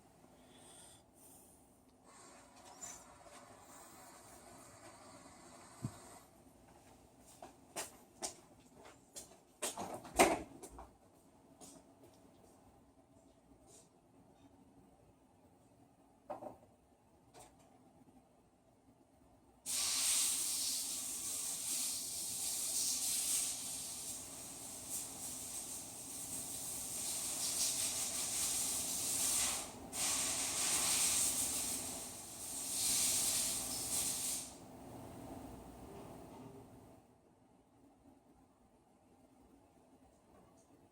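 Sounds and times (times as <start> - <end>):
compressed air blow gun hissing: 19.7 - 34.6.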